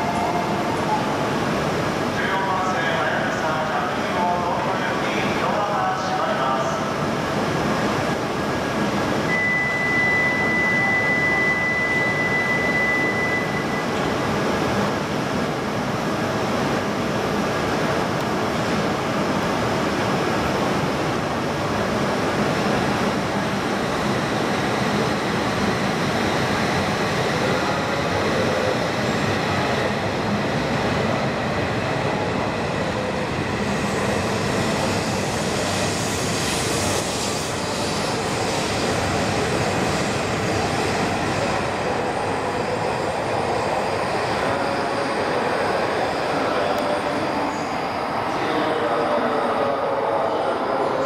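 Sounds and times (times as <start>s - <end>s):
train rolling noise: 10.6s - 51.0s.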